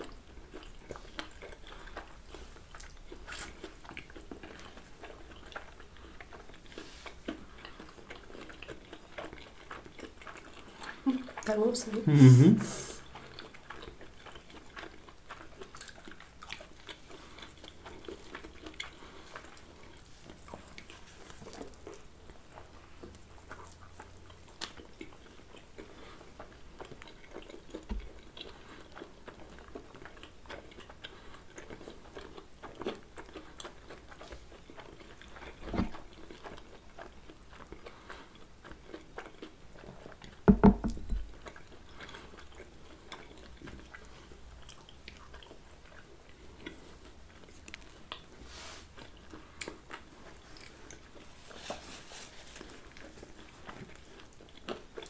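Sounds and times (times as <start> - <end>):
people chewing pizza: 0.0 - 55.0
low thumps: 40.5 - 41.2.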